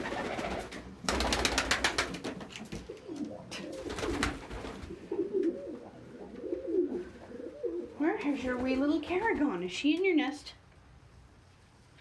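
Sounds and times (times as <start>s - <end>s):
pigeons cooing: 2.7s - 8.0s.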